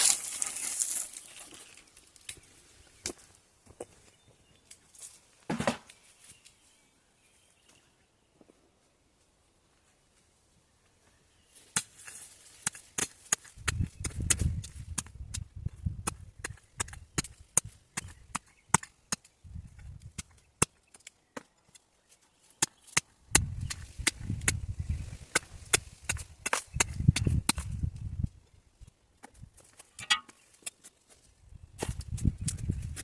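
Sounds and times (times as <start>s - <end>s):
metal tool striking stones: 30.0s - 30.4s.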